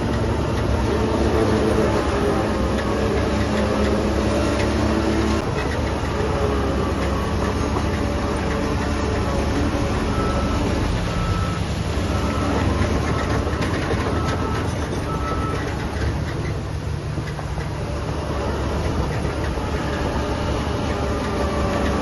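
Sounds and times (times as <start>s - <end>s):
diesel machinery rumbling: 0.0s - 22.0s
reversing alarm beeps: 9.8s - 15.7s.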